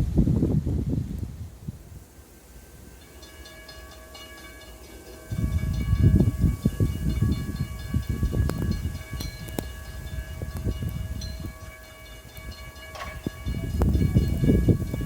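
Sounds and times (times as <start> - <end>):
train wheels rumbling on rails: 2.8 - 15.0.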